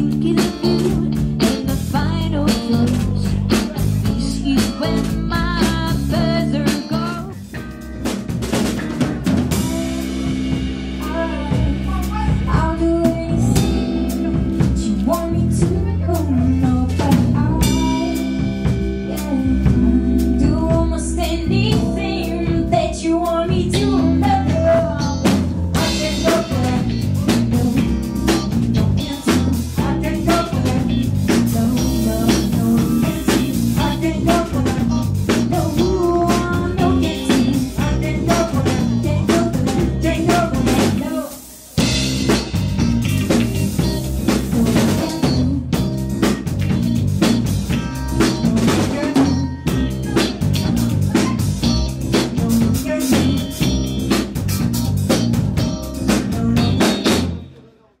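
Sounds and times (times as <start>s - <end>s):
electric guitar: 0.0s - 57.6s
drum kit: 0.0s - 57.7s
live band music: 0.0s - 57.9s.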